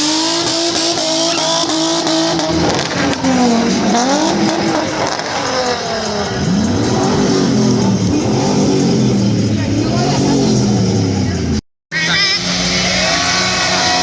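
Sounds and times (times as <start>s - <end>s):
engine revving hard: 0.0s - 14.0s
spinning tyres hissing: 0.0s - 14.0s.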